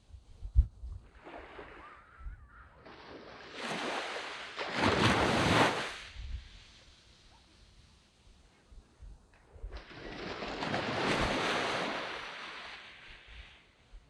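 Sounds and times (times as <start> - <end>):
wind thump on microphone: 0.3 - 1.2
sea waves breaking on beach: 1.1 - 2.2, 2.8 - 8.2, 9.7 - 13.8.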